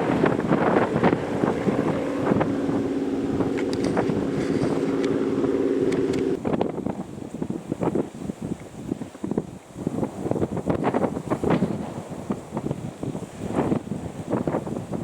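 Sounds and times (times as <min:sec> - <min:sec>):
low two-tone hum: 0:00.0 - 0:06.4
wind buffeting microphone: 0:00.0 - 0:15.0.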